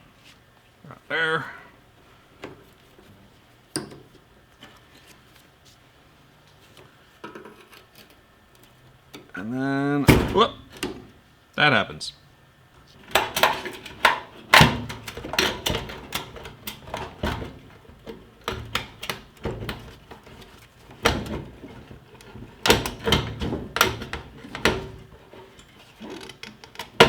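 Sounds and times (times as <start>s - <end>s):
fuel pump clicks and clatter: 13.0s - 27.0s.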